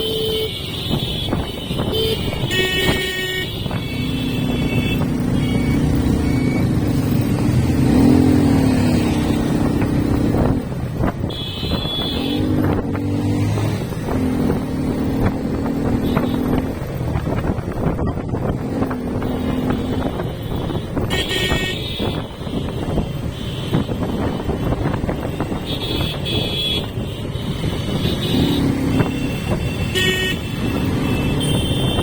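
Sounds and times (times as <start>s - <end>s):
horn honking: 0.0s - 6.8s, 11.2s - 12.8s, 15.8s - 16.7s, 19.2s - 32.0s
road and wind noise: 0.0s - 32.0s
motorcycle engine revving: 1.4s - 32.0s.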